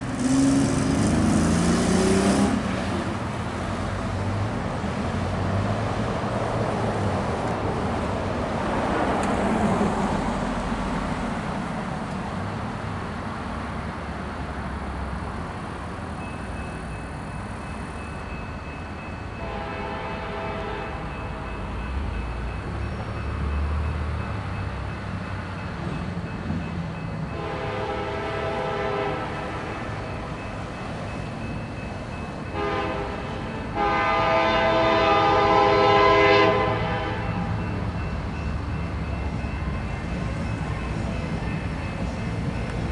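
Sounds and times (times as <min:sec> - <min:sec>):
diesel locomotive rumble: 0:00.0 - 0:42.9
train air horn: 0:19.4 - 0:21.1, 0:27.3 - 0:29.8, 0:32.6 - 0:37.5.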